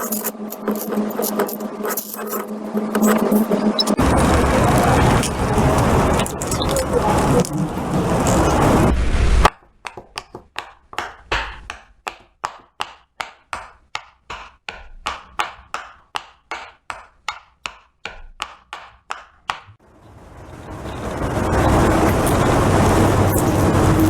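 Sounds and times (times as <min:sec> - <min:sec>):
loud noisy sound: 0:00.0 - 0:09.5, 0:19.8 - 0:24.0.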